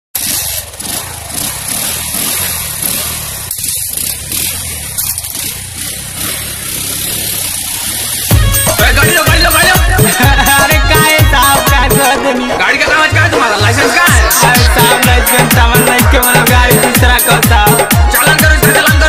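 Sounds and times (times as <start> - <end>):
motorcycle engine running: 0.2 - 12.2, 13.2 - 19.0.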